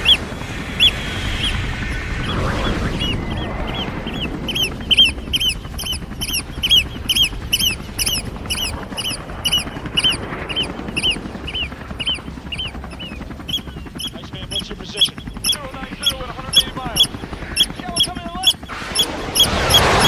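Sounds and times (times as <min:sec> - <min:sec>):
low rumble: 0:00.0 - 0:13.3
shrill piping bird alarm calls: 0:00.0 - 0:20.0.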